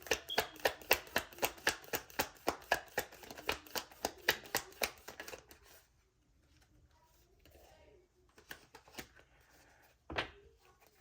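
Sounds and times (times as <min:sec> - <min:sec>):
cards being shuffled: 0:00.0 - 0:05.9, 0:08.3 - 0:09.8.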